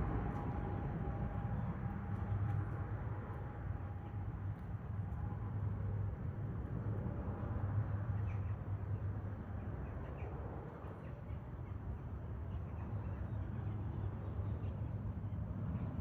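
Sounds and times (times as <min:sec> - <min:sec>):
distant jet aircraft rumble: 0:00.0 - 0:16.0.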